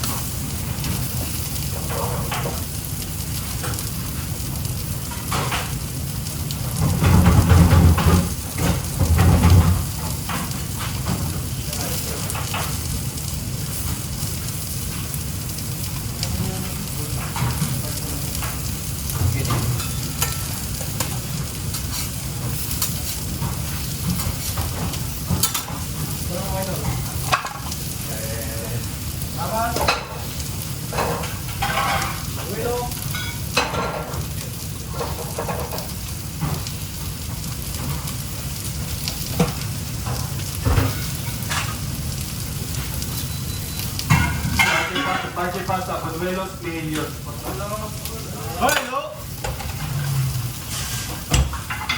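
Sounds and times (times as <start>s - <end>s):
food sizzling in hot oil: 0.0s - 51.9s
utensils clicking on pans: 0.0s - 51.9s.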